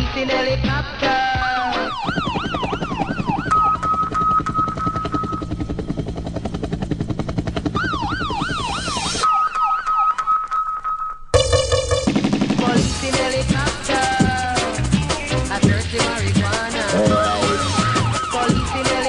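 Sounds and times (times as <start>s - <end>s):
wailing siren: 1.8s - 5.3s, 7.8s - 11.0s, 16.9s - 18.6s
fast even electronic pulse: 1.9s - 9.2s, 11.4s - 12.6s, 16.8s - 18.8s.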